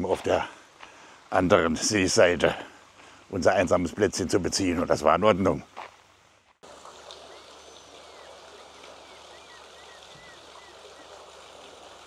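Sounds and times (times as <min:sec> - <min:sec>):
small bird chirping: 0:07.1 - 0:11.2.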